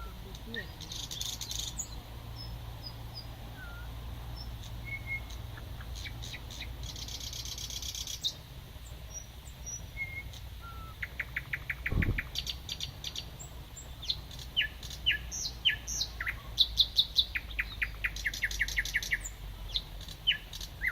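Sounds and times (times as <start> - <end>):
nightingale singing: 0.0 - 20.9
low thump: 11.9 - 12.3.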